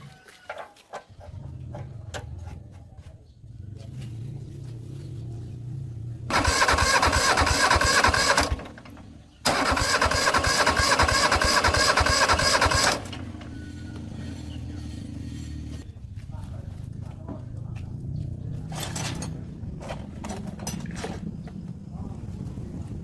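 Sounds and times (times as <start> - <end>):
engine being cranked: 6.3 - 15.8.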